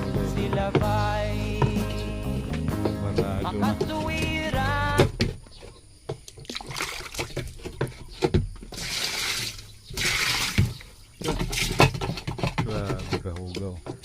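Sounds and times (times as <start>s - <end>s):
knocks and clicks: 0.0s - 6.4s
water splashing and pouring: 6.3s - 7.7s, 8.7s - 12.0s.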